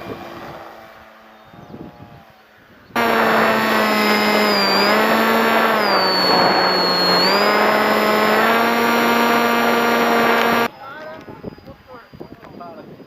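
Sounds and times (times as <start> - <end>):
model aircraft motor whine: 3.0 - 10.7.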